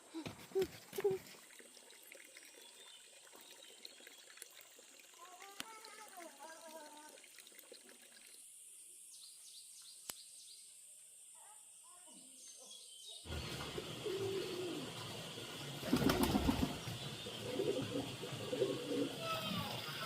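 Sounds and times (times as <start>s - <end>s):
birds calling: 12.4s - 20.0s.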